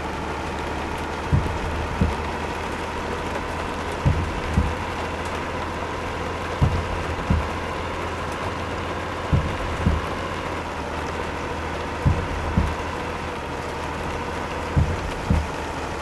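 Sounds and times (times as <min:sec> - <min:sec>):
faint steady whine: 0:00.0 - 0:16.0
truck engine and road noise: 0:00.0 - 0:16.0
short low thumps: 0:01.2 - 0:05.6, 0:06.4 - 0:08.4, 0:09.2 - 0:10.5, 0:11.8 - 0:13.3, 0:14.6 - 0:15.8.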